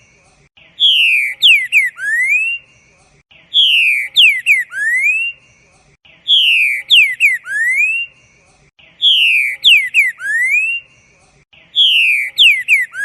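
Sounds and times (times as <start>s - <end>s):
songbird whistling: 0.6s - 2.7s, 3.4s - 5.4s, 6.2s - 8.2s, 8.9s - 10.9s, 11.6s - 13.0s.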